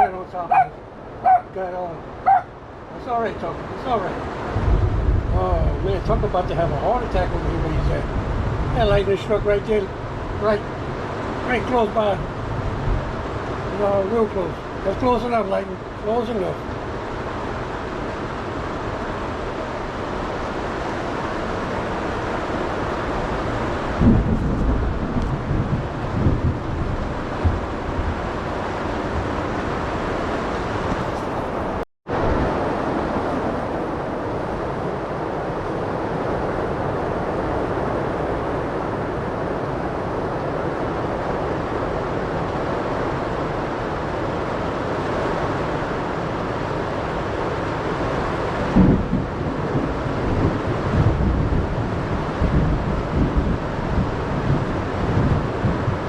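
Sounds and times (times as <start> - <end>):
heavy rain pouring: 0.0 - 56.0
wind: 0.0 - 56.0
thunder rumbles: 4.0 - 15.0, 16.6 - 39.1, 48.0 - 56.0.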